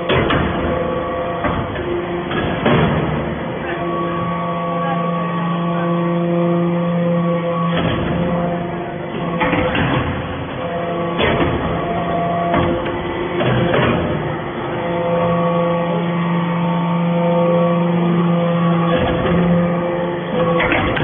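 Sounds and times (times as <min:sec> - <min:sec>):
machine knocks: 0:00.0 - 0:04.0, 0:07.4 - 0:17.0, 0:18.2 - 0:21.0.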